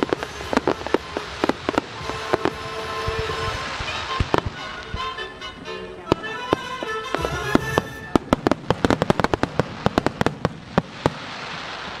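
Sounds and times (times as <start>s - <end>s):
music with held notes: 0.0s - 8.6s.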